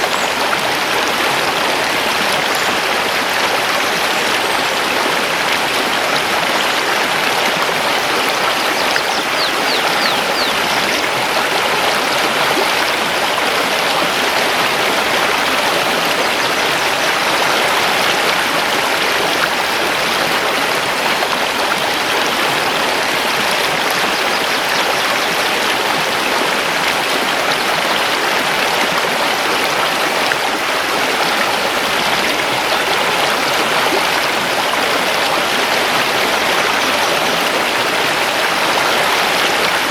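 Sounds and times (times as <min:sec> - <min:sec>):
river rushing over stones: 0:00.0 - 0:39.9
faint high bird chirps: 0:08.6 - 0:11.0.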